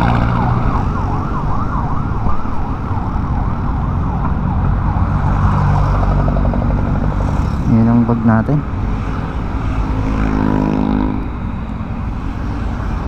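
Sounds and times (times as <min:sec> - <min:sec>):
siren yelping: 0:00.0 - 0:06.4.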